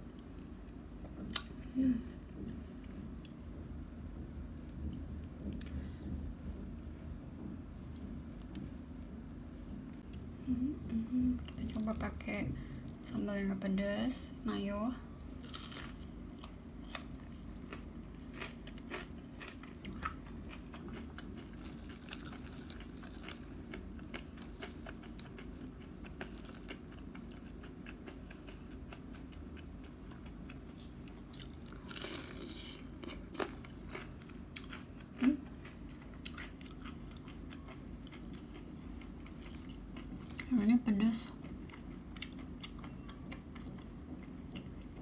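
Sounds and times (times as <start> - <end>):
person biting and chewing food: 1.2 - 1.6, 15.3 - 40.4.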